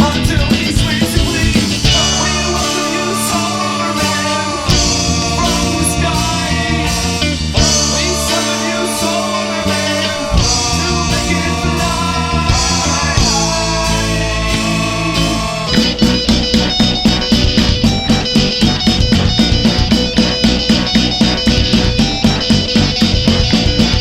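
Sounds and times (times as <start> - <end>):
person singing: 0.0 - 16.4
bass guitar: 0.0 - 24.0
electric guitar: 0.0 - 24.0
indie rock song: 0.0 - 24.0.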